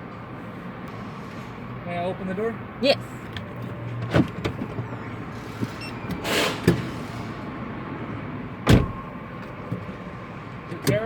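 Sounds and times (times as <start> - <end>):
brief hiss: 6.2 - 7.3
car door clicks and knocks: 8.6 - 9.9, 10.7 - 11.0.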